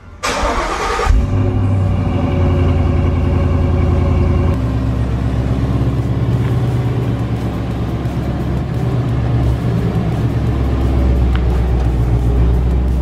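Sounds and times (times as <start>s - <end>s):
engine starting and idling: 0.0s - 5.1s.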